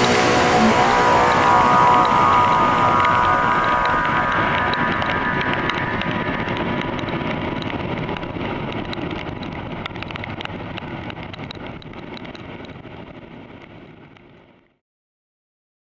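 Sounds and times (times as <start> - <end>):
motorcycle engine: 0.0 - 6.1.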